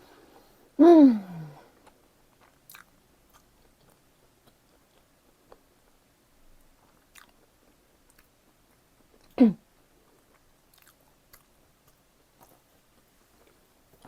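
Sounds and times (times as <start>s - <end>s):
wet mouth clicks chewing: 10.3s - 12.6s.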